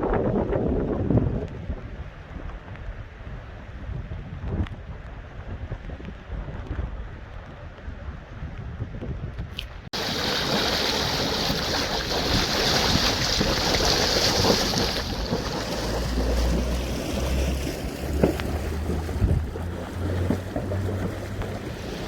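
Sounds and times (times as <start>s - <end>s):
wind buffeting microphone: 0.0s - 22.0s
floodwater rushing: 10.0s - 22.0s.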